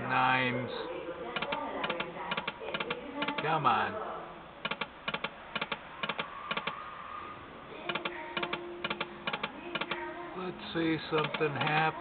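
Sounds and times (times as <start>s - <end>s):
slot machine electronic clicks: 4.7s - 6.7s, 7.9s - 10.0s, 11.1s - 11.8s.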